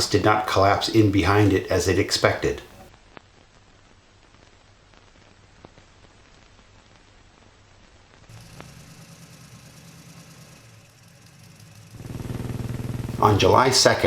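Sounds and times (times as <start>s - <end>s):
steady hiss: 0.0s - 14.0s
steady low hum: 8.2s - 14.0s.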